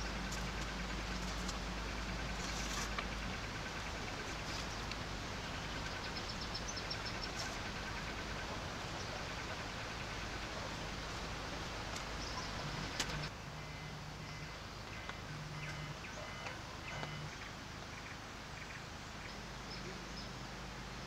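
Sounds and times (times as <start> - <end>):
steady rain falling: 0.0 - 13.4.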